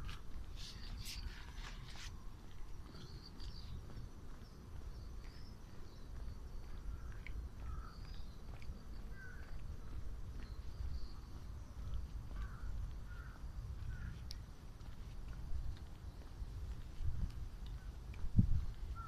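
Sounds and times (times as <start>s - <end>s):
small birds chirping: 0.0s - 14.4s, 15.7s - 17.0s
steady low rumble: 0.0s - 19.0s.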